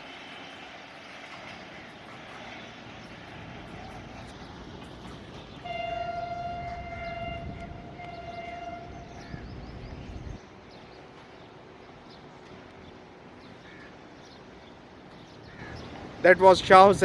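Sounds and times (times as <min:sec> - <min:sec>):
train rumbling past: 0:00.0 - 0:17.0
train horn blasts: 0:05.6 - 0:09.5.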